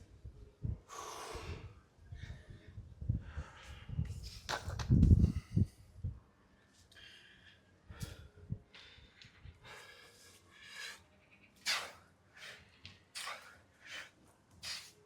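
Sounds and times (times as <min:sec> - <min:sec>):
person breathing heavily: 0:00.9 - 0:04.1, 0:06.9 - 0:15.0.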